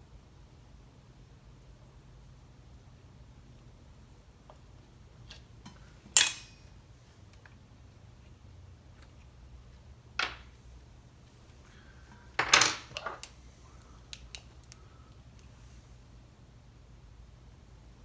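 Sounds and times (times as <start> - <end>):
metal tools clinking and knocking: 6.2 - 6.7, 12.4 - 13.3.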